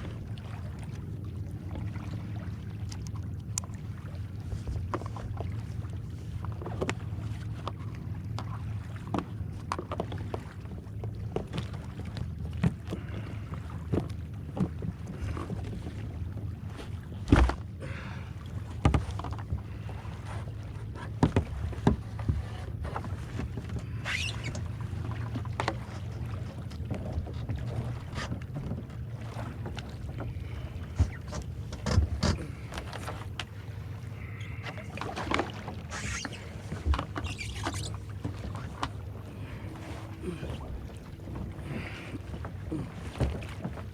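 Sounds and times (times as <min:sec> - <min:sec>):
paddle splashing in water: 0:00.0 - 0:43.9
paddle knocks: 0:17.2 - 0:17.6, 0:18.8 - 0:19.7, 0:20.9 - 0:24.7, 0:26.9 - 0:33.6.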